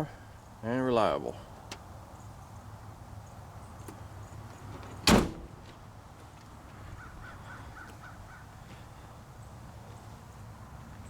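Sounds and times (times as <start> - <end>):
faint outdoor background noise: 0.0 - 11.0
short bird calls: 6.9 - 9.2.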